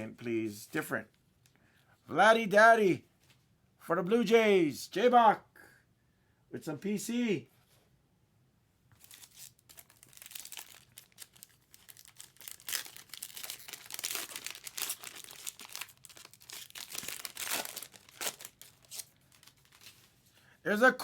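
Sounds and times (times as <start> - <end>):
cards being handled: 9.0 - 20.2
wrapper crinkling and tearing: 9.0 - 20.2.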